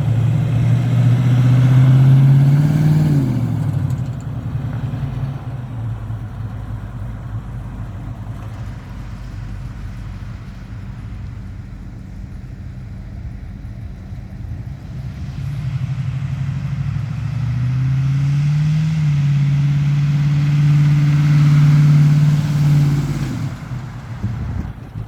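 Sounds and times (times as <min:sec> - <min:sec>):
truck engine revving: 0:00.0 - 0:07.1, 0:13.3 - 0:25.0.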